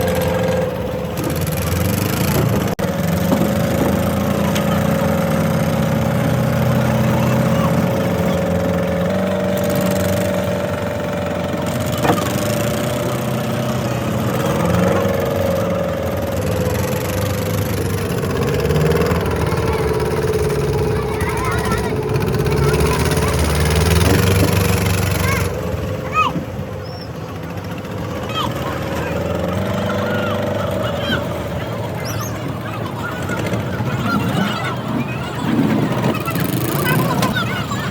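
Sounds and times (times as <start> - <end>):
boat engine droning: 0.0 - 37.9.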